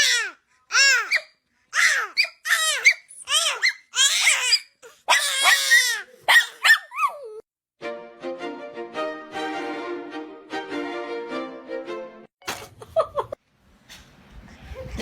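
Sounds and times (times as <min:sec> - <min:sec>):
dog whining yelps: 0:00.0 - 0:07.4.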